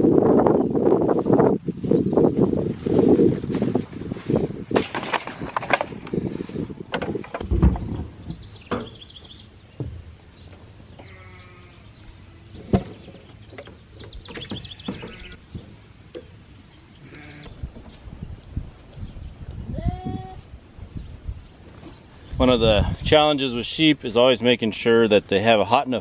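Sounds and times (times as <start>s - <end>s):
knocks and clatter: 4.7s - 6.1s, 6.9s - 9.0s
sheep bleating: 11.0s - 12.6s, 17.0s - 17.5s, 19.7s - 20.4s.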